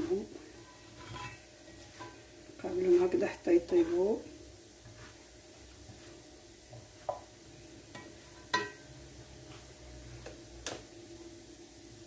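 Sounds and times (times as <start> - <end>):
utensil clinking against frying pan: 8.0 - 8.9.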